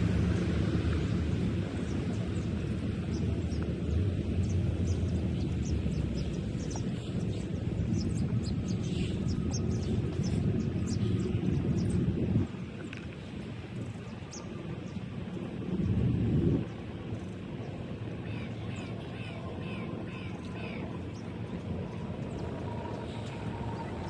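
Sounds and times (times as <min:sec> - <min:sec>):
steady low rumble: 0:00.0 - 0:24.0
small birds chirping: 0:01.8 - 0:15.1.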